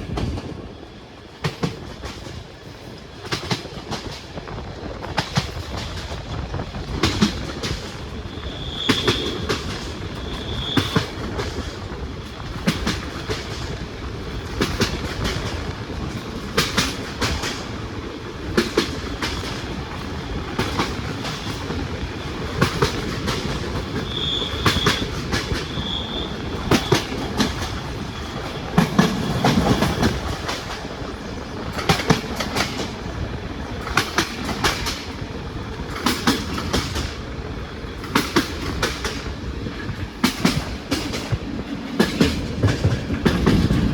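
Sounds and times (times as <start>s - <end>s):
train rolling rumble: 0.0s - 43.9s
train wheels clattering over rail joints: 0.0s - 43.9s
wheel squeals: 8.3s - 11.6s, 23.4s - 29.9s.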